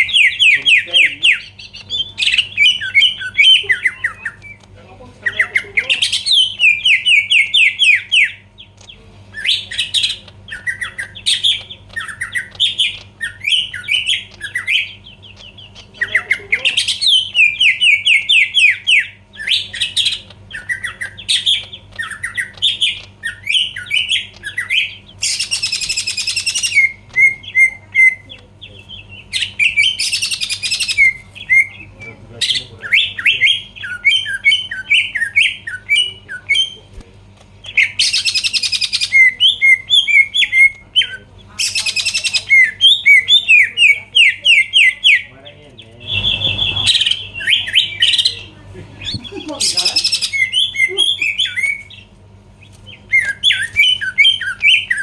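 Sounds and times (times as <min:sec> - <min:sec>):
faint low hum: 0:00.0 - 0:55.0
bird singing whistled notes: 0:46.0 - 0:48.5.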